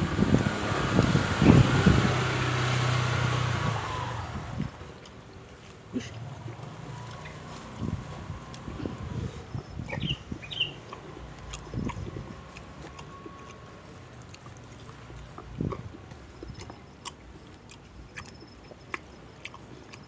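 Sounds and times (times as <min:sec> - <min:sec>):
person chewing food: 0:08.5 - 0:20.0.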